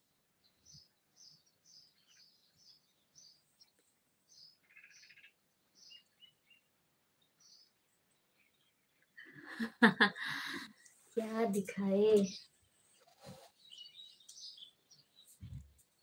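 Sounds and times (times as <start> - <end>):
faint small-bird chirps: 0.0 - 9.4, 12.0 - 16.0
bird trill: 4.3 - 6.6.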